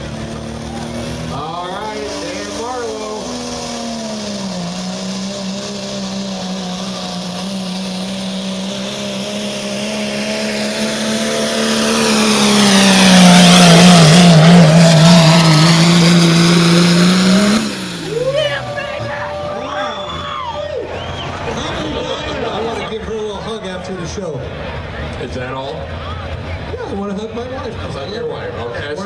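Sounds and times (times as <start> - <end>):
diesel truck engine at full throttle: 0.0 - 29.0.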